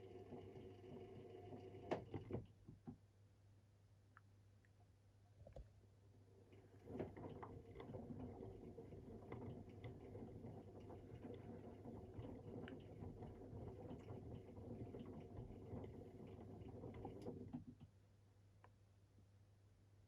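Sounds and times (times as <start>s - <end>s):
washing machine motor humming: 0.0s - 2.5s, 6.4s - 17.8s
laundry pattering in drum: 6.7s - 17.7s.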